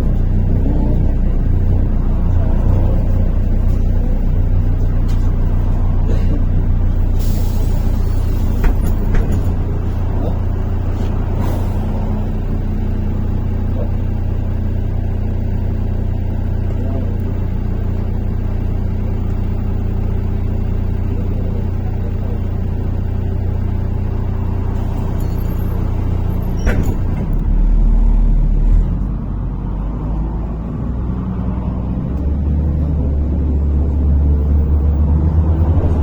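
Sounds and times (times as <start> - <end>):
bus engine drone: 0.0 - 36.0
pneumatic air hisses: 7.2 - 9.0.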